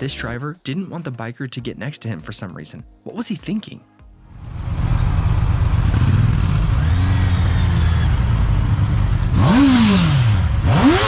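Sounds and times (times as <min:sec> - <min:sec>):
wind rumble: 0:04.3 - 0:09.4
motorcycle engine revving: 0:04.4 - 0:11.0.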